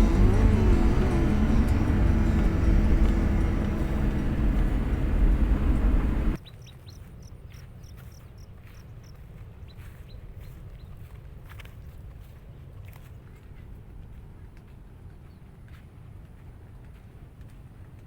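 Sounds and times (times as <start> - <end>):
background music: 0.0 - 6.4
bird chirping: 0.0 - 10.9.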